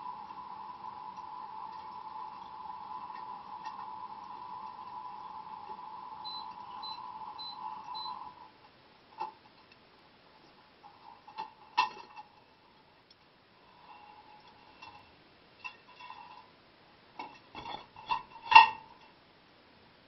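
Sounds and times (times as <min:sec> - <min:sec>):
dishwasher hum: 0:00.0 - 0:09.6.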